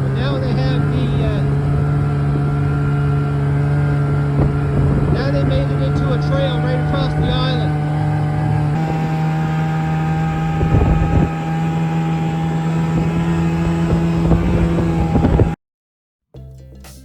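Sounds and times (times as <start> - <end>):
snowmobile engine running: 0.0 - 15.6
wind buffeting microphone: 0.0 - 15.6
soft music: 16.4 - 17.0.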